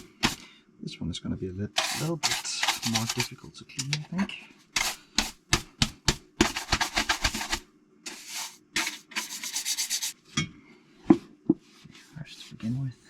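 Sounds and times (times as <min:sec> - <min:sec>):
brush scrubbing metal part: 0:00.0 - 0:00.4, 0:01.8 - 0:04.0, 0:04.7 - 0:10.2.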